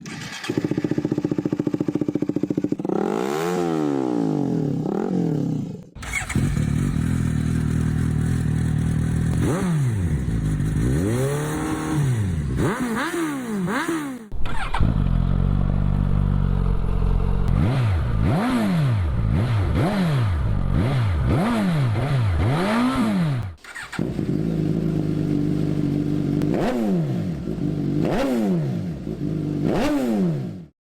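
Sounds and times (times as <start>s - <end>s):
motorcycle exhaust revving: 0.5s - 30.6s.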